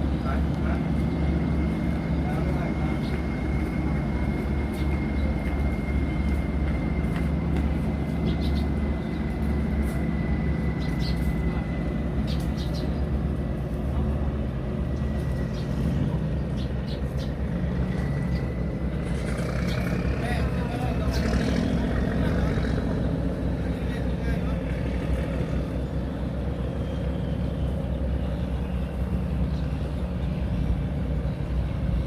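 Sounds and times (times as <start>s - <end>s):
engines droning: 0.0s - 32.0s
bird chirps: 10.8s - 11.3s.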